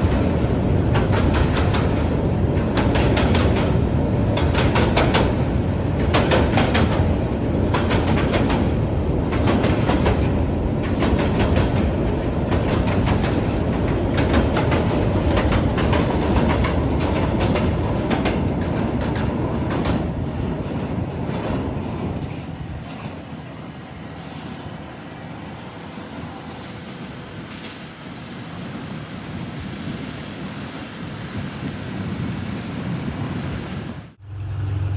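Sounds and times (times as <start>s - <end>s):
train wheels clicking over rail joints: 0.0s - 25.1s
train rumble: 0.0s - 34.9s.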